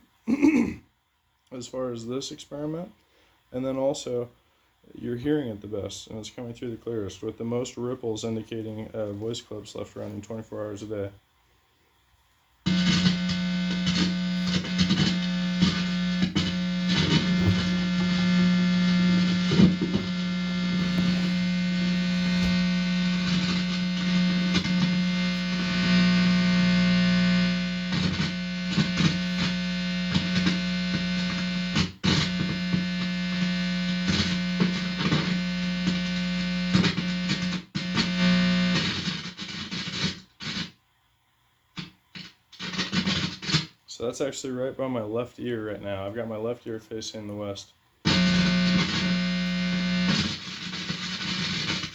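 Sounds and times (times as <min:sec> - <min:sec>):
guitar amplifier mains hum: 0:01.4 - 0:40.8, 0:41.4 - 0:51.9
electrical crackles: 0:12.7 - 0:39.3, 0:48.1 - 0:51.9.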